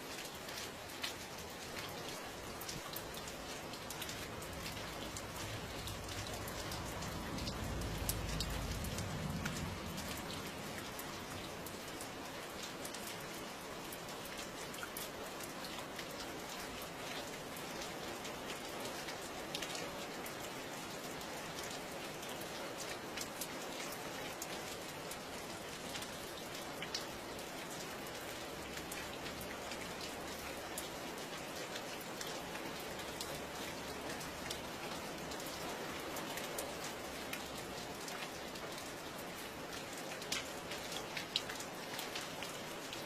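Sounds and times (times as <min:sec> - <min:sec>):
raindrops ticking on hard surface: 0:00.0 - 0:43.0
steady rain falling: 0:00.0 - 0:43.0.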